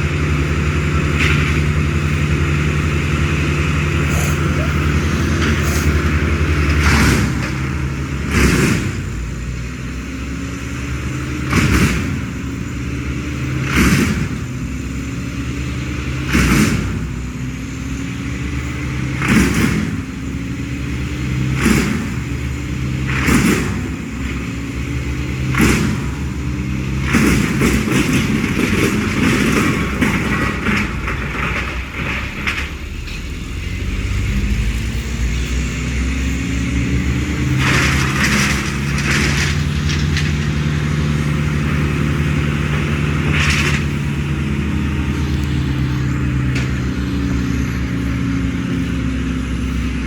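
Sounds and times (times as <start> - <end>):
engine running: 0.0 - 50.0
loud noisy bursts: 0.7 - 9.3.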